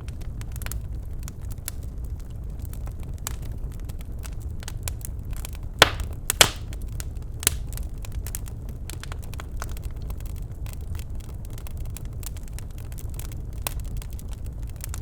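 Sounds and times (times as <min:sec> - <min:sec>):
logs crackling in fireplace: 0:00.0 - 0:15.0
loud pops of fire: 0:00.0 - 0:15.0.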